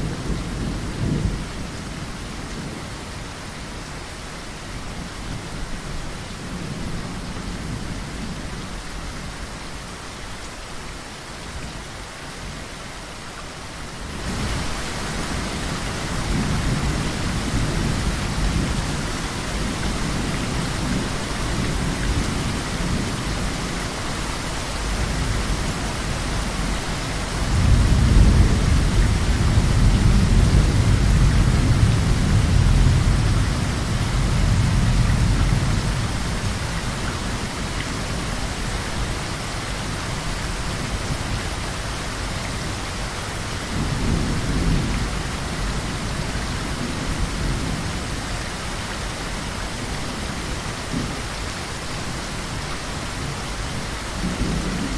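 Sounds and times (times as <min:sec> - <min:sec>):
heavy rain: 0:00.0 - 0:54.9
rolling thunder: 0:24.8 - 0:38.4.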